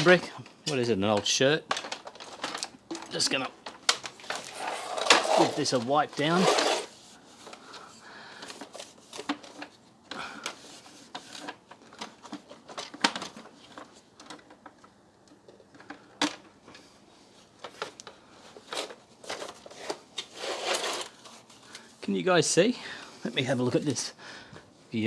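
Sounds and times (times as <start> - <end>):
cloth rubbing on plastic: 4.3 - 7.2, 20.4 - 21.5.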